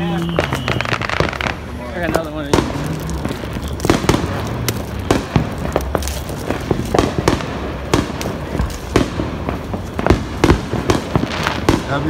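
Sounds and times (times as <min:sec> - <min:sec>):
distant firework blasts: 0:00.0 - 0:12.0
firecrackers banging and popping: 0:00.0 - 0:12.0.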